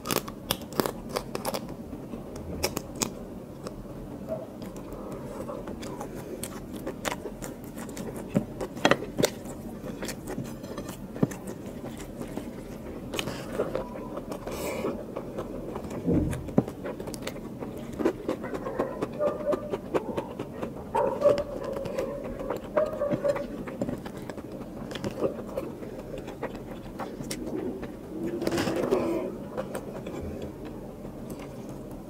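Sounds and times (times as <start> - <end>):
wet chewing with mouth clicks: 0.0 - 32.0.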